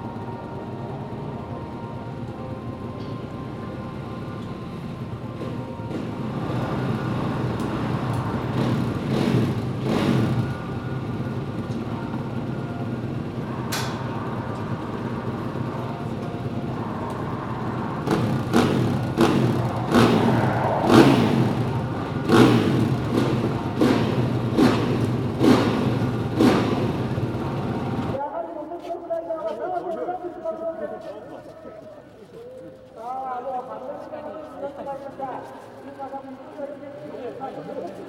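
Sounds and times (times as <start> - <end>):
motorcycle engine revving: 0.0 - 28.2.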